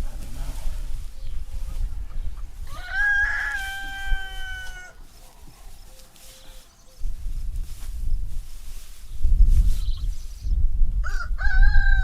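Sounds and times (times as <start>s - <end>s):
rooster crowing: 2.6s - 5.0s, 11.0s - 12.0s.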